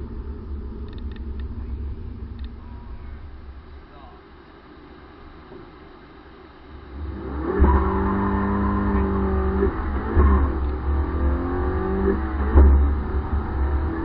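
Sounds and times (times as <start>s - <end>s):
car engine accelerating hard: 6.8s - 14.0s.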